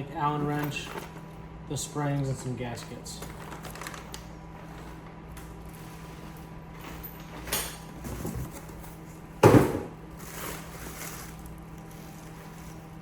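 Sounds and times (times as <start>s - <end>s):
packaging rustling: 3.2s - 5.0s, 10.2s - 13.0s.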